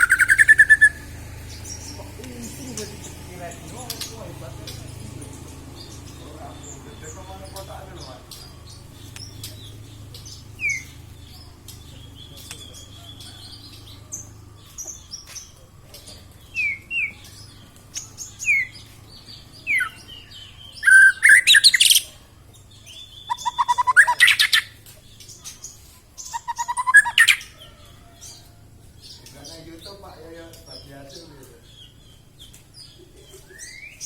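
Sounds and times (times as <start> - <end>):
bird whistles and trilled song: 0.0 - 2.0, 8.3 - 13.9, 16.5 - 22.2, 22.9 - 24.8, 26.2 - 27.6, 32.4 - 34.0.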